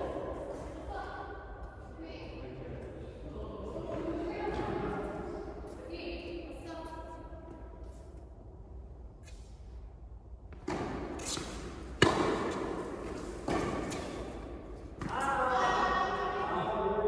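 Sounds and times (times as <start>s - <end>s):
ball bouncing: 10.6s - 15.3s
racket hitting tennis ball: 10.6s - 15.3s
voices: 15.0s - 17.0s.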